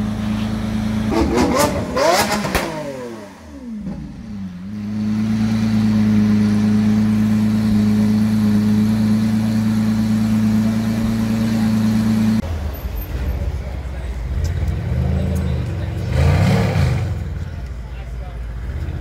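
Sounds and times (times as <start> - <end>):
car engine revving and idling: 0.0 - 12.6, 14.2 - 19.0.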